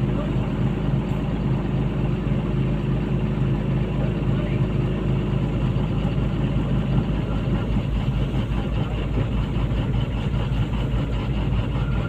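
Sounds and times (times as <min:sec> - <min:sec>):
excavator diesel engine idling: 0:00.0 - 0:12.0.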